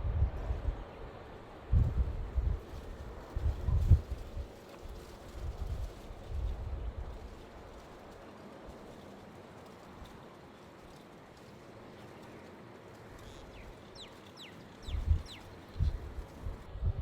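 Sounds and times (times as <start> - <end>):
small bird chirping: 13.2 - 16.3.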